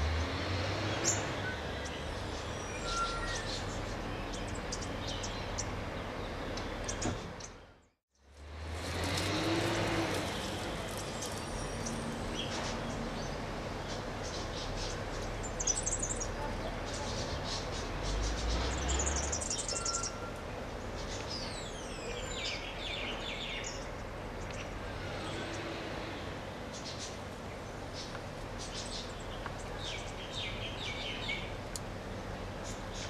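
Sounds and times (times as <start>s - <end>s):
birds chirping and calling: 0.9s - 7.7s, 10.8s - 25.7s.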